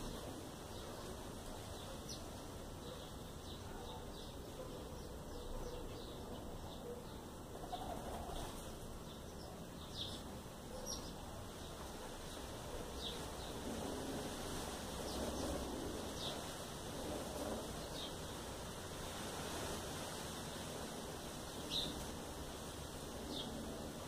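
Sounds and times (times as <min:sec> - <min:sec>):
background hiss: 0:00.0 - 0:24.0.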